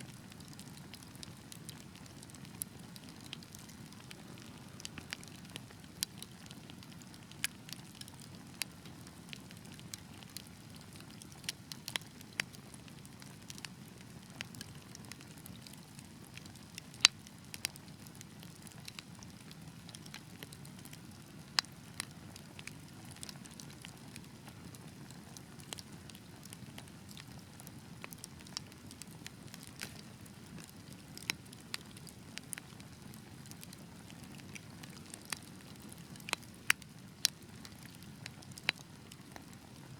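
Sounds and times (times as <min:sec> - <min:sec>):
low rumble of fire flames: 0:00.1 - 0:39.9
wood fire crackling and popping: 0:00.1 - 0:39.9.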